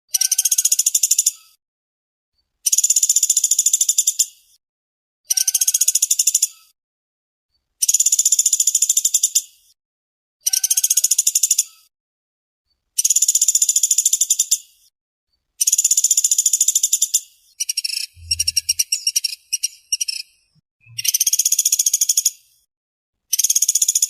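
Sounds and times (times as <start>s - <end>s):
woodpecker calling in high trills: 0.1s - 1.6s, 5.3s - 6.7s, 10.4s - 11.9s, 15.6s - 20.2s.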